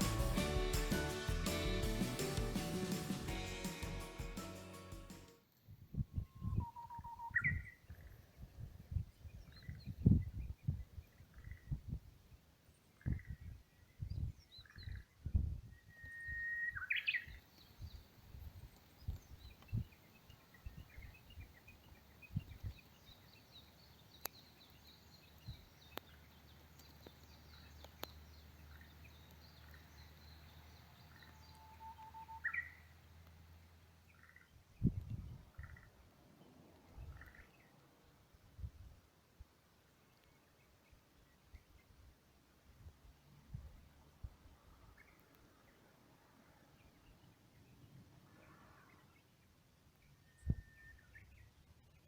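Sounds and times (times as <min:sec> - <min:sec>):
wild birds calling faintly: 0:15.8 - 0:38.4, 0:44.5 - 0:51.6
faint high bird trill: 0:31.1 - 0:32.9.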